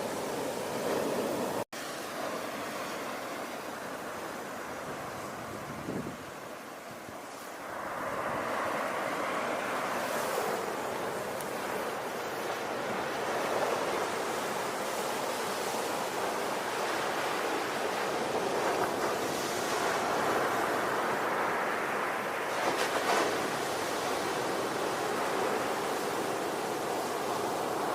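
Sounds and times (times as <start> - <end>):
ocean waves washing in: 0.0 - 27.9.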